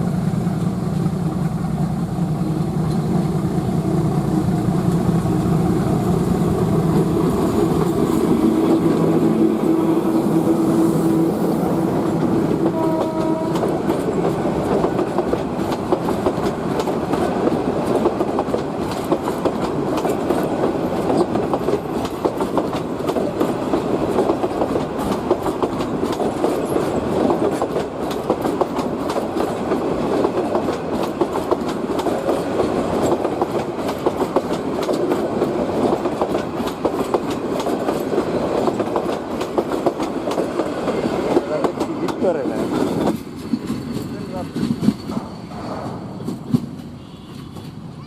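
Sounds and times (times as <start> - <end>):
train coaches rumbling: 0.0 - 48.0
wheels clacking over rail joints: 11.8 - 47.8.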